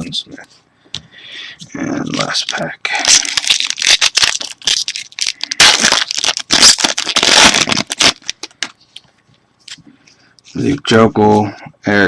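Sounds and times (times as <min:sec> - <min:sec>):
card pack wrapper crinkling: 0:02.1 - 0:08.8.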